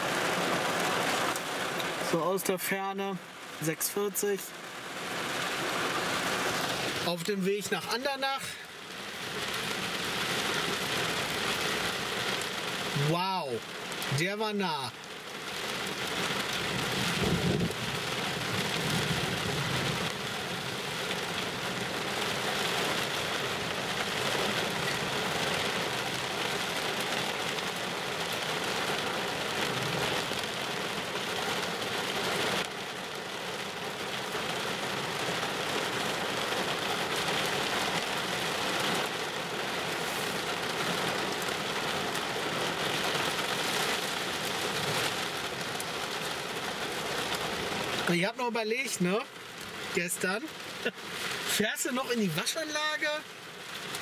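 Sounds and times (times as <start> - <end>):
heavy rain on a car: 0.0 - 54.0
thunder rumbling: 16.6 - 20.0.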